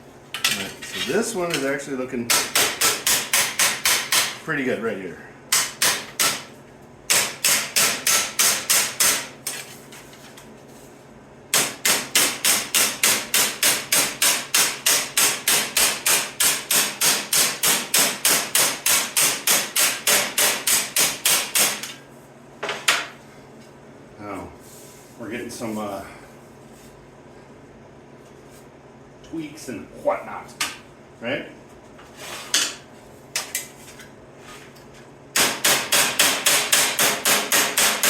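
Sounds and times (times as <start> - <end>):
hammer striking sheet steel: 11.5 - 21.8, 35.4 - 38.0.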